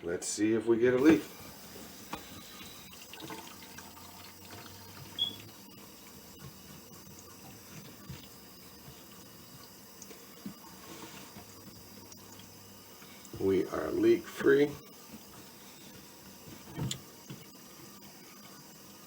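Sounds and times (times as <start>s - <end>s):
tap water running into sink: 1.0s - 13.6s.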